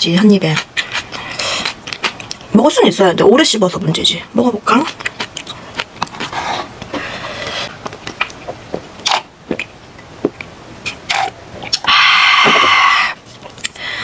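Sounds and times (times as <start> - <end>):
close chewing with mouth clicks: 0.4 - 2.5, 4.7 - 9.7.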